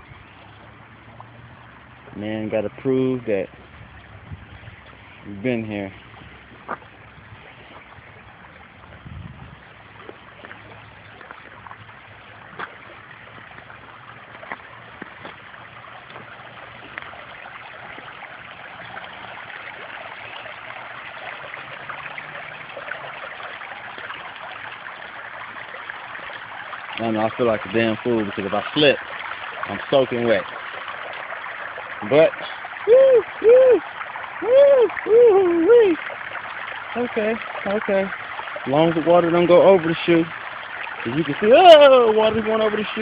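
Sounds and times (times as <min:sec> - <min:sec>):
stream rushing over rocks: 0:06.0 - 0:43.0.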